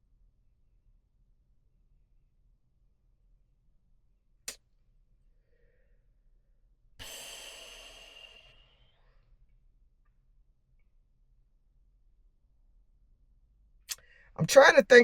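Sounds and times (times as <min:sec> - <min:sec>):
heavy breathy sigh: 0:07.0 - 0:09.0.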